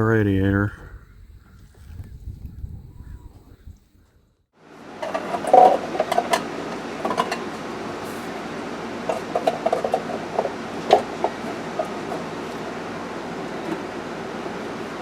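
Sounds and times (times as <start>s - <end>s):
small hard parts clinking: 5.0s - 7.6s, 9.1s - 12.7s.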